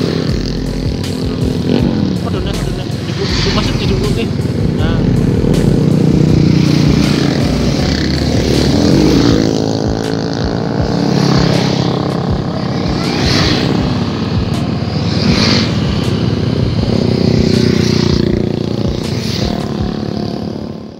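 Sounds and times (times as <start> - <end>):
motorcycle engine revving: 0.0 - 20.9
rush of noise: 0.0 - 20.9.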